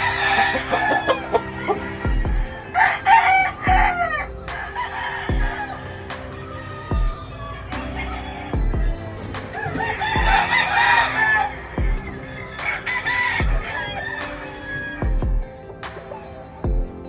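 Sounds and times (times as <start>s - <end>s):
rooster crowing: 0.0s - 15.4s
music with kick-drum beat: 2.0s - 2.7s, 3.7s - 4.7s, 5.3s - 6.3s, 6.9s - 7.9s, 8.6s - 10.6s, 11.8s - 12.7s, 13.4s - 13.8s, 15.0s - 17.0s.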